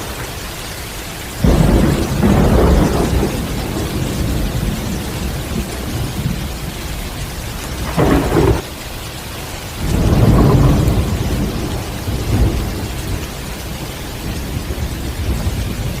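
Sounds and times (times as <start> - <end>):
thunder rumbling: 0.0 - 8.8, 9.6 - 16.0
heavy rain falling: 0.0 - 16.0.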